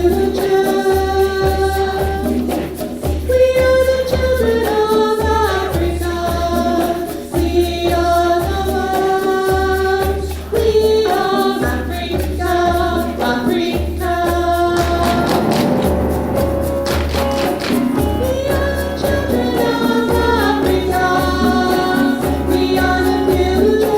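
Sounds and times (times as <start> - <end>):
steady percussion beat: 0.0 - 23.9
choir singing held notes: 14.2 - 23.9.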